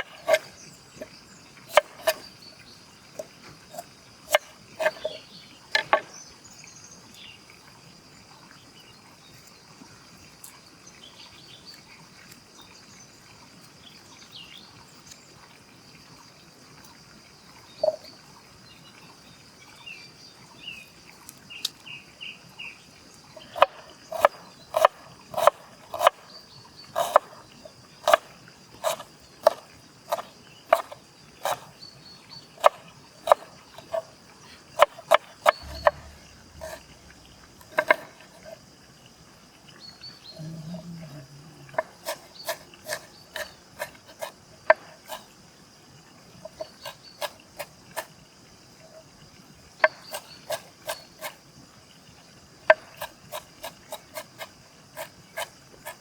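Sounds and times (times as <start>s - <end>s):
knife chopping on cutting board: 0.0s - 1.1s, 28.8s - 31.7s, 34.8s - 36.9s.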